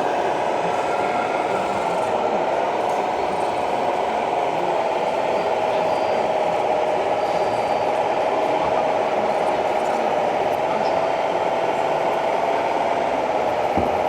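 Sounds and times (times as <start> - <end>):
constant noisy background: 0.0 - 14.0.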